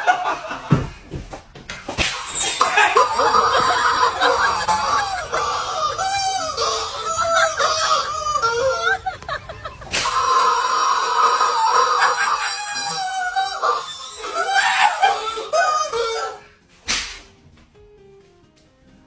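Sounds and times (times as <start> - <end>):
high-pitched squealing cries: 2.0 - 16.5.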